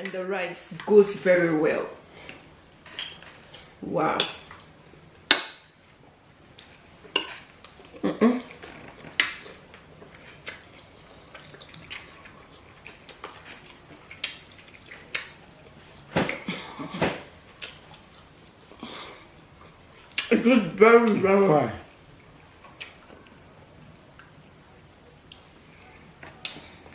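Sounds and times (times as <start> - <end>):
mouth sounds of eating: 6.5 - 26.9.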